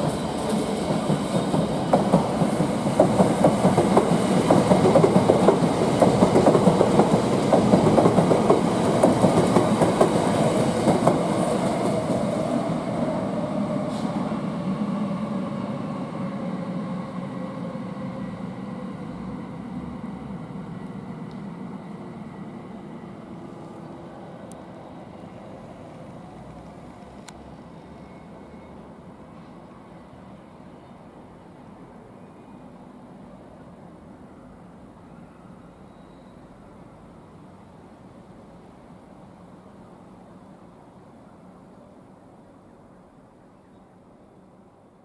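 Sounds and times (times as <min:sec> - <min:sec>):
train wheels clattering over rail joints: 0:00.0 - 0:11.9.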